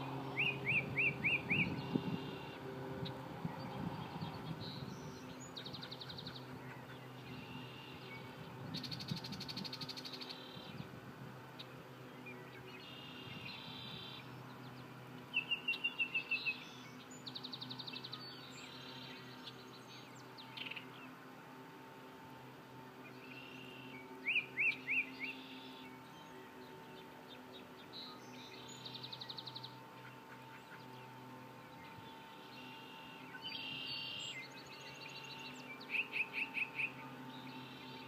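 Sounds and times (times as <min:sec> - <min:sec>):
bird singing rattles and chatters: 0:00.3 - 0:10.8, 0:23.1 - 0:38.0.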